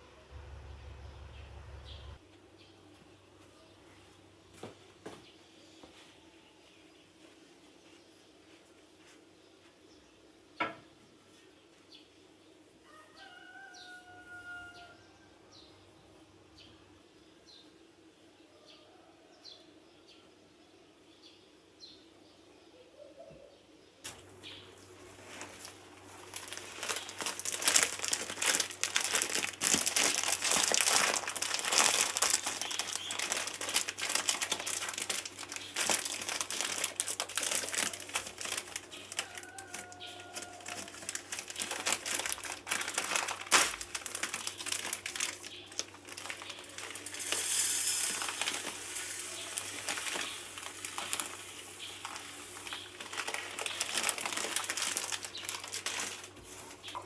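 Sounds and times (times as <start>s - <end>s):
crinkling and rustling: 24.1s - 57.0s.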